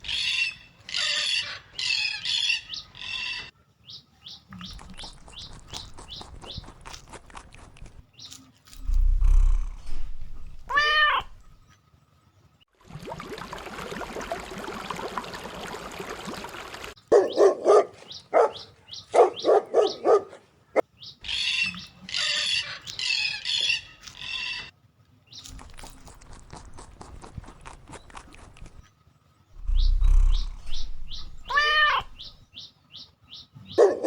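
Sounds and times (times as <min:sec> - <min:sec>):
pitched cry: 0:10.6 - 0:11.5, 0:29.6 - 0:32.4
dog barking: 0:17.1 - 0:20.5, 0:33.8 - 0:34.0.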